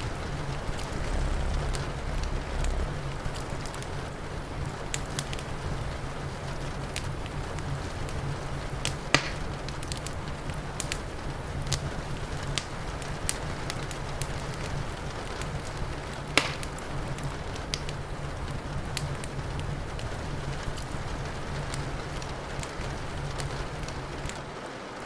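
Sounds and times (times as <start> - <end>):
wood fire crackling: 0.0 - 3.9
steady low rumble: 0.0 - 4.5.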